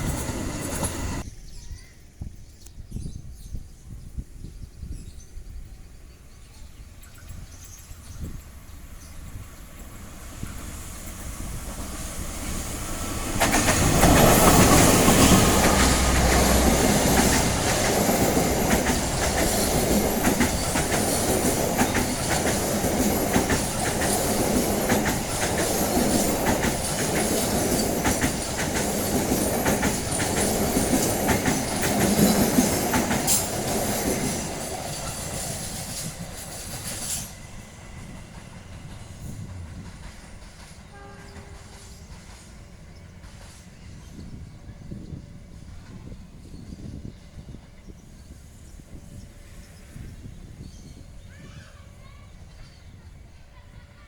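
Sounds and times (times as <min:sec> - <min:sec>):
train wheels clattering over rails: 0:00.0 - 0:01.2, 0:07.6 - 0:48.0.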